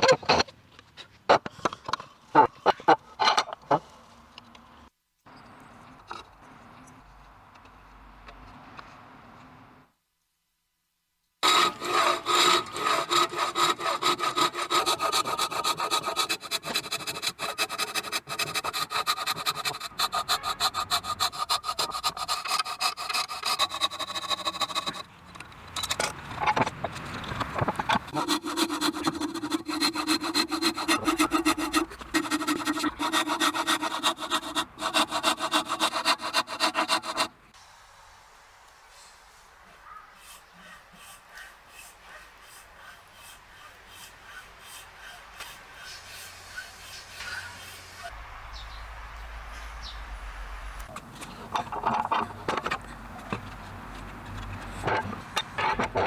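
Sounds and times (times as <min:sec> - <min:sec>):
saw cutting through wood: 0:11.4 - 0:25.1, 0:28.0 - 0:37.3.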